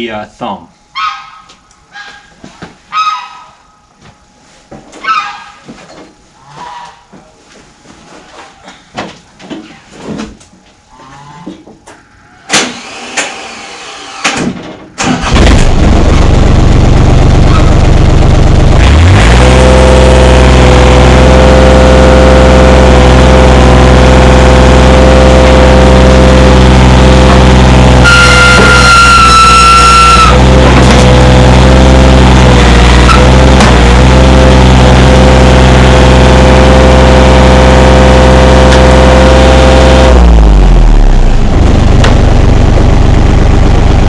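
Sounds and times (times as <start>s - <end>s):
diesel engine starting and running: 12.5s - 44.0s
high steady whine: 15.0s - 44.0s.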